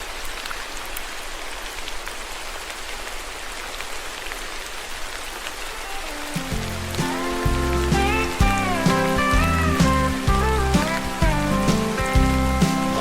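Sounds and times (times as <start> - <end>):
raindrops ticking: 0.0 - 13.0
steady rain hiss: 0.0 - 13.0
music: 6.0 - 13.0.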